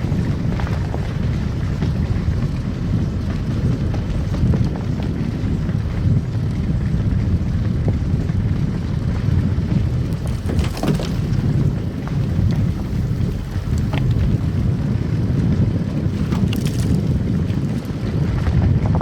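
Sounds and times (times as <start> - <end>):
car tyres and engine rumble: 0.0 - 19.0
brief clicks and crackles: 16.1 - 18.5.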